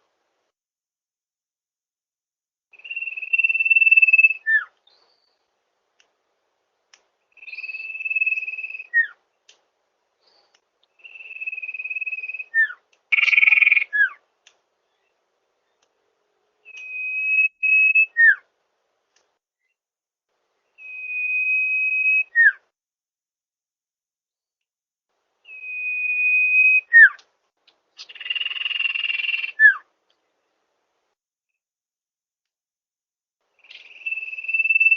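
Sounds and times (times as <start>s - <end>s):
bird song whistle: 2.7s - 5.5s, 7.3s - 9.2s, 10.2s - 14.2s, 16.6s - 18.5s, 20.7s - 22.7s, 25.4s - 27.2s, 28.0s - 29.9s, 33.6s - 34.9s.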